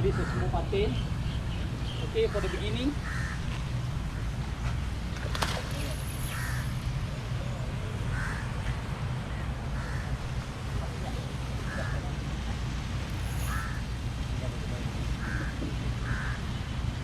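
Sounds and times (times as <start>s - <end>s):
steady low hum: 3.6s - 17.0s
bird calling: 5.6s - 6.8s, 11.6s - 14.0s.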